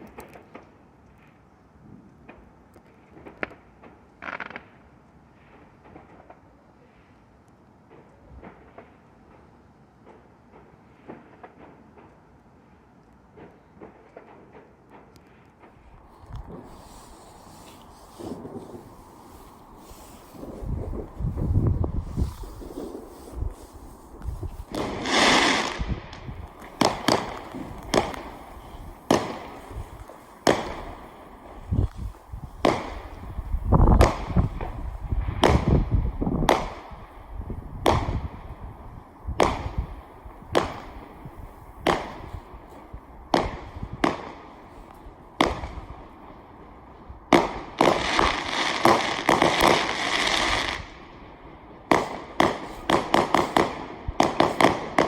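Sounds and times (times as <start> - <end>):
firework crackling: 2.3 - 6.6, 13.5 - 55.0
firework bangs: 13.4 - 46.4, 47.3 - 55.0.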